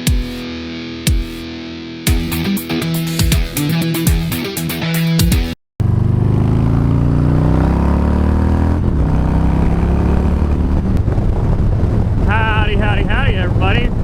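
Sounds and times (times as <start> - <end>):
motorcycle engine accelerating: 5.3 - 12.4.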